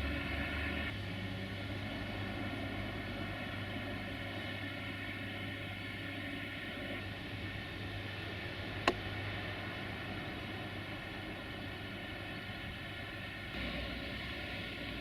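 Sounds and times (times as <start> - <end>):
electric locomotive humming: 0.0 - 15.0.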